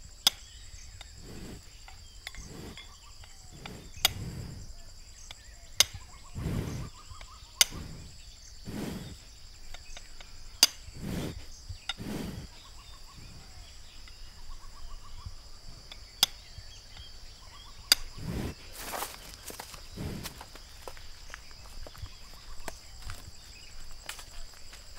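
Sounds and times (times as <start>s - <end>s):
crickets droning: 0.0s - 24.9s
faint chirping trills: 0.0s - 24.9s
water buffalo breathing heavily: 1.0s - 24.9s.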